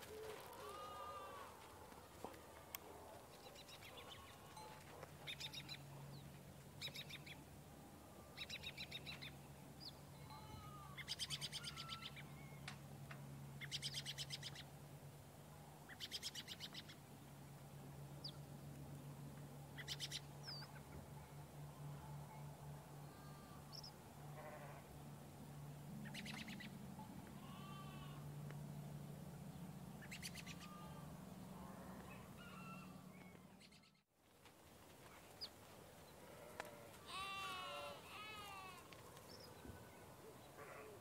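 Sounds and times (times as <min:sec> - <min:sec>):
faint low hum: 0:00.0 - 0:41.0.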